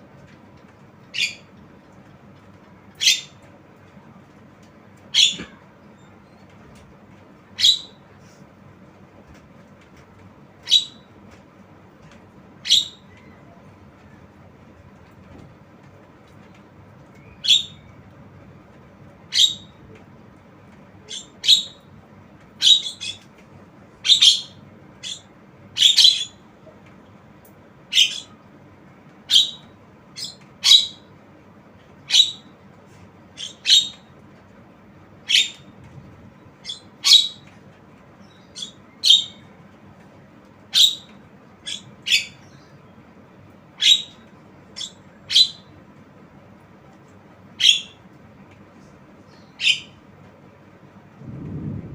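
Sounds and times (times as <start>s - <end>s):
bird giving sharp high calls: 5.1s - 5.6s, 7.6s - 8.0s, 10.6s - 11.1s, 12.6s - 13.1s, 17.3s - 17.8s, 19.3s - 19.7s, 22.6s - 23.2s, 24.0s - 26.4s, 27.9s - 28.4s, 29.3s - 29.6s, 30.2s - 31.0s, 32.1s - 32.5s, 33.4s - 34.0s, 35.3s - 35.6s, 36.6s - 37.4s, 38.5s - 39.4s, 40.7s - 42.4s, 43.8s - 44.2s, 47.6s - 48.0s, 49.6s - 50.0s.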